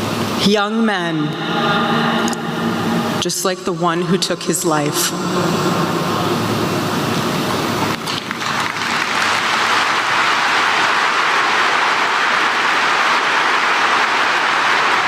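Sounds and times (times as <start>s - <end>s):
large crowd applauding: 7.8s - 15.0s.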